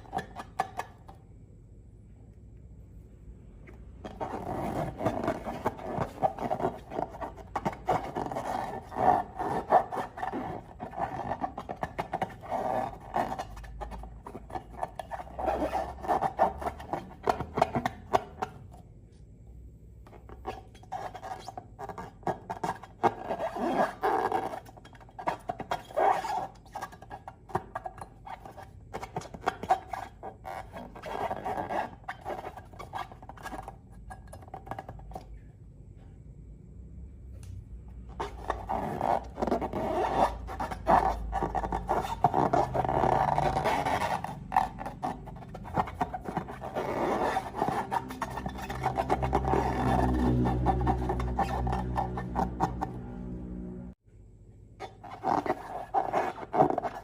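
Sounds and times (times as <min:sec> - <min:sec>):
slime balloons squishing: 0:03.9 - 0:18.6, 0:38.1 - 0:53.1.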